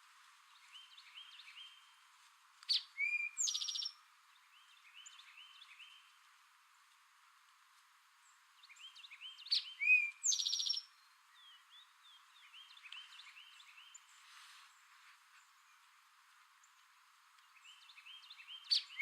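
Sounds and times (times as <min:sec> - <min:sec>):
songbird singing a trill: 0:00.5 - 0:02.0, 0:02.6 - 0:06.2, 0:08.2 - 0:14.2, 0:16.6 - 0:19.0
faint bird chirps: 0:02.6 - 0:06.2, 0:08.2 - 0:19.0.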